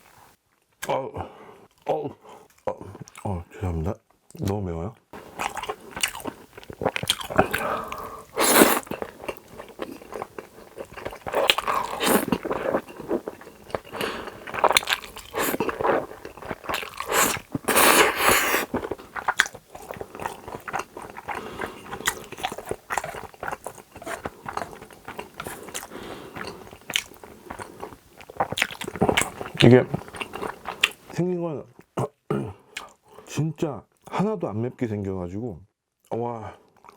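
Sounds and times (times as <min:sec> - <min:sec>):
close-miked chewing and crunching: 0:01.7 - 0:04.6, 0:05.2 - 0:31.2, 0:36.7 - 0:36.9.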